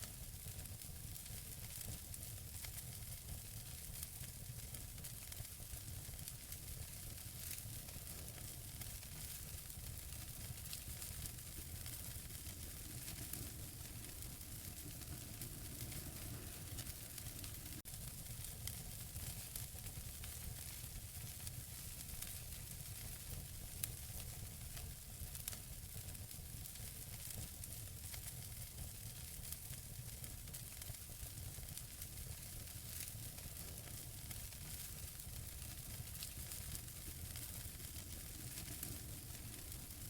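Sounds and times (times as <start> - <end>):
wood fire crackling: 0.0 - 40.0
sharp fire pops: 6.4 - 24.4, 31.6 - 40.0
low rumble: 12.6 - 17.8.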